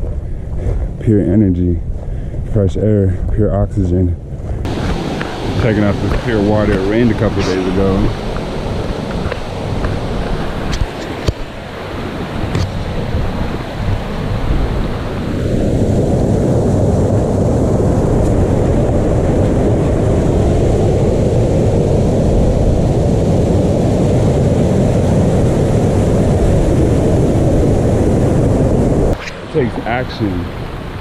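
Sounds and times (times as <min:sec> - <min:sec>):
river rushing: 0:04.6 - 0:15.8, 0:25.0 - 0:31.0.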